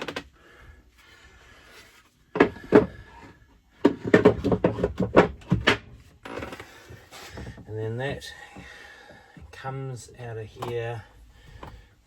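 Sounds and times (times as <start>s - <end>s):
hard objects knocking and clunking: 2.3s - 7.7s.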